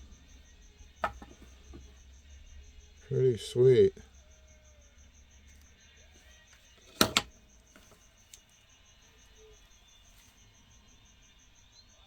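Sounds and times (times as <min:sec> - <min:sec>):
faint high chirping: 0:00.0 - 0:12.0
sharp knocks on hard surface: 0:01.0 - 0:01.9.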